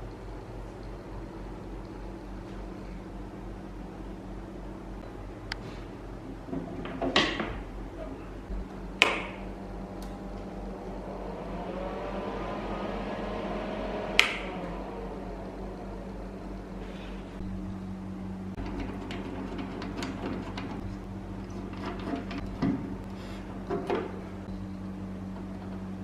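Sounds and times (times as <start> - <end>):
steady low hum: 0.0 - 26.0
sharp clicks and knocks: 8.5 - 10.5, 18.6 - 24.6.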